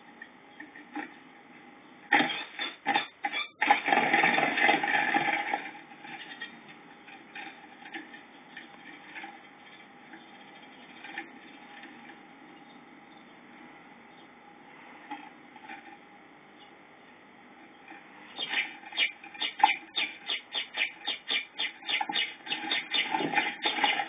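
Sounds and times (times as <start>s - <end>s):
birds fluttering and scrabbling: 2.1s - 12.7s, 17.8s - 24.0s.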